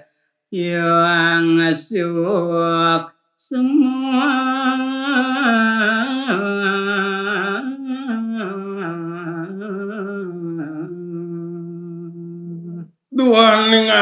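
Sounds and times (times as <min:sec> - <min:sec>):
man singing unaccompanied: 0:00.6 - 0:14.0.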